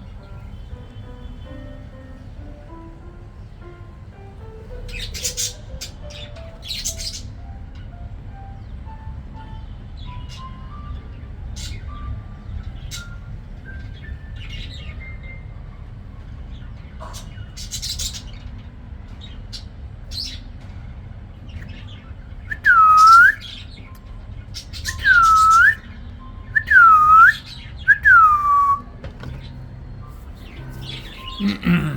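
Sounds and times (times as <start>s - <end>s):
budgies chirping: 4.7s - 7.5s, 10.0s - 15.5s, 16.5s - 20.6s, 21.5s - 28.8s, 29.4s - 31.9s
loud whistled calls: 22.5s - 23.6s, 24.8s - 25.9s, 26.6s - 28.9s.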